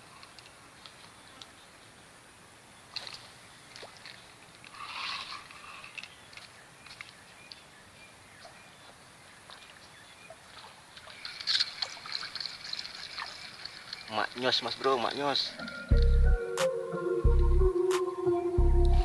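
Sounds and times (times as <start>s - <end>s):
small ticks: 3.0s - 7.6s.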